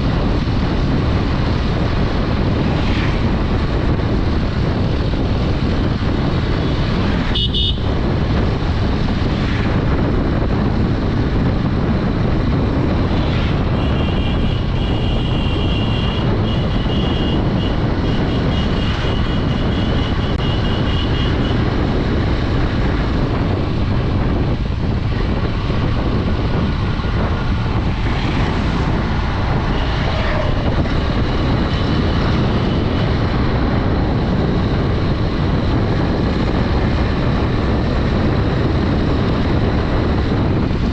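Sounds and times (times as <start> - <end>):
motorcycle engine riding: 0.0 - 40.9
road noise: 0.0 - 40.9
vehicle horn beeps: 7.3 - 7.9, 13.8 - 21.3.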